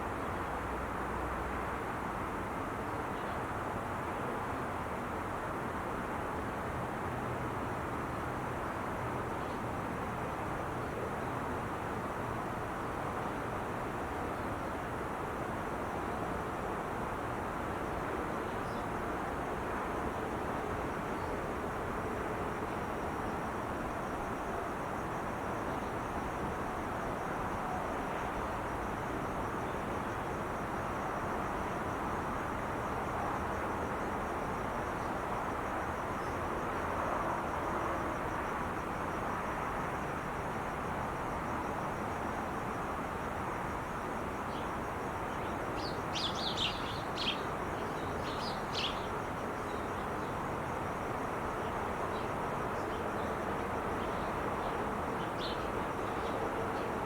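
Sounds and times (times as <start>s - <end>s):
freeway traffic noise: 14.8s - 57.0s.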